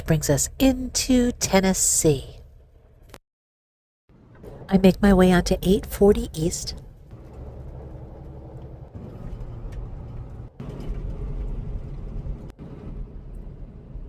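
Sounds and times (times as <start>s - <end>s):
road noise: 4.1s - 14.0s
truck engine rumble: 4.1s - 14.0s.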